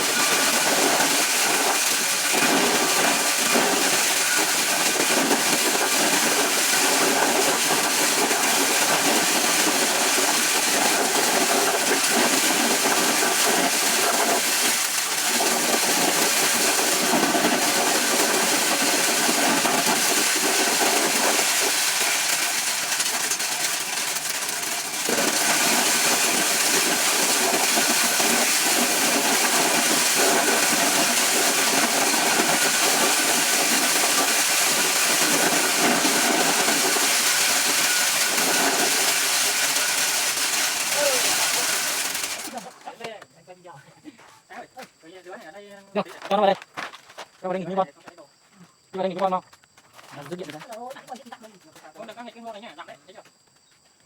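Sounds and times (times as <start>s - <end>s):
corn shelling machine rattling: 0.0s - 43.1s.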